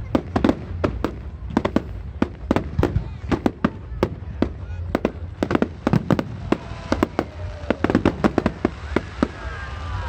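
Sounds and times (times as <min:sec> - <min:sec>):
fireworks bangs: 0:00.0 - 0:10.0
descending fireworks whistles: 0:05.8 - 0:10.0.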